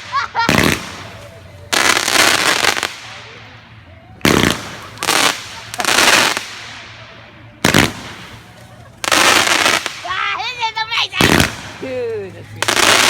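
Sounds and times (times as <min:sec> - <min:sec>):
firework bangs with crackle: 0:00.0 - 0:03.6, 0:04.2 - 0:10.3, 0:11.0 - 0:13.0.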